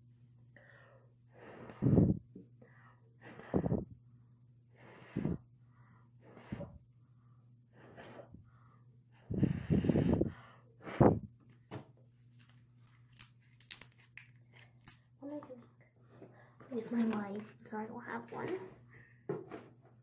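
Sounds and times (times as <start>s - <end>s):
breathy puffs of air: 0.6s - 4.0s, 4.7s - 6.8s, 7.8s - 11.3s.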